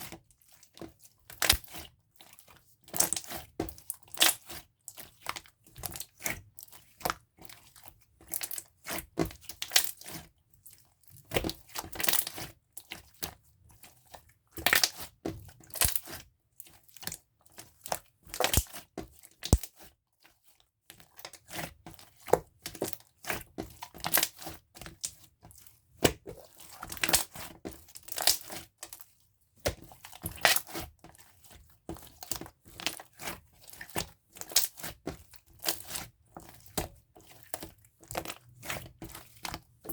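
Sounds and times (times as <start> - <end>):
slime squished by hand: 18.3 - 18.8, 19.4 - 19.8.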